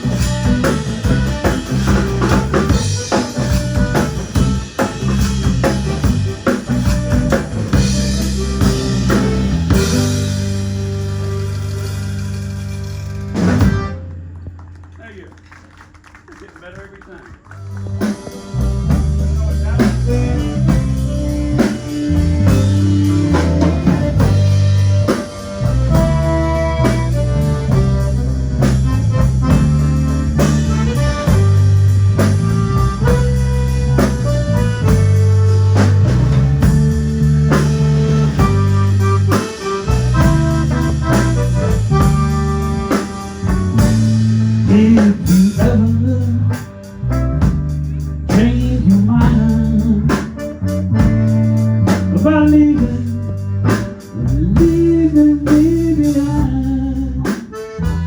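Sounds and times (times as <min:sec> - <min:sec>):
guitar: 0:00.0 - 0:14.6, 0:17.6 - 0:58.0
steady bass line: 0:00.0 - 0:15.4, 0:17.4 - 0:58.0
drum kit: 0:00.0 - 0:58.0
person singing: 0:44.6 - 0:46.7, 0:48.3 - 0:50.4, 0:52.1 - 0:53.4, 0:54.4 - 0:57.6.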